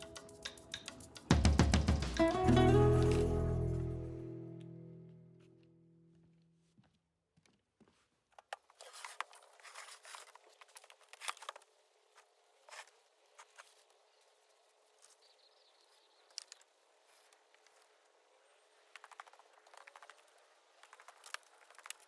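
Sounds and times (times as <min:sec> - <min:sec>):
quiet hiss: 0:00.0 - 0:05.6
scratchy rustling: 0:08.6 - 0:15.2
small clicks and ticks: 0:16.2 - 0:18.0, 0:18.7 - 0:22.0.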